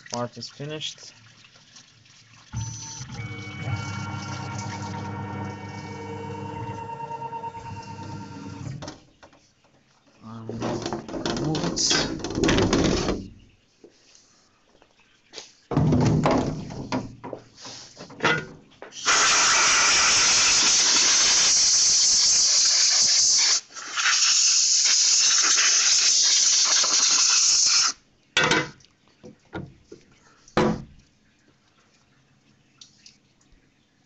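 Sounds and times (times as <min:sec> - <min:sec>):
metal knocks and clatter: 0:10.4 - 0:13.3, 0:15.7 - 0:18.8
compressed air hissing: 0:19.0 - 0:28.0.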